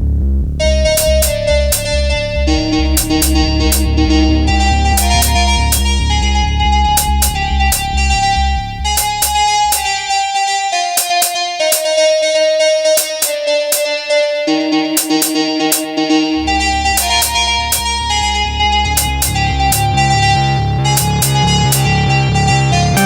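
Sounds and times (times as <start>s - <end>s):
synth bass line: 0.0s - 13.2s, 14.4s - 23.0s
synth lead melody: 0.5s - 23.0s
drum machine hits: 0.6s - 4.3s, 5.0s - 6.2s, 6.8s - 8.1s, 8.9s - 9.9s, 11.0s - 12.0s, 13.0s - 13.8s, 15.0s - 15.8s, 17.0s - 17.9s, 18.9s - 19.9s, 21.0s - 21.9s.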